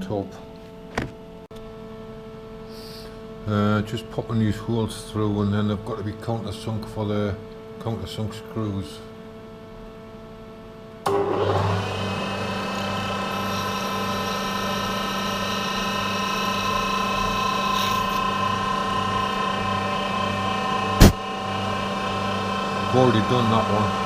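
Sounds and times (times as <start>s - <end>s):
machine tool drilling metal: 11.2s - 18.4s
sharp knock: 21.0s - 21.2s.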